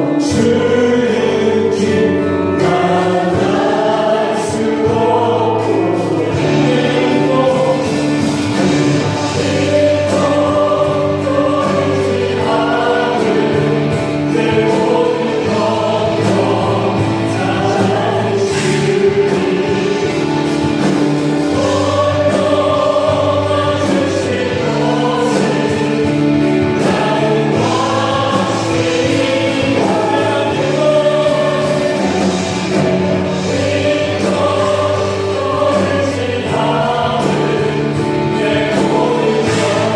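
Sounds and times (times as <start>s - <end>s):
group singing worship song: 0.0s - 39.9s.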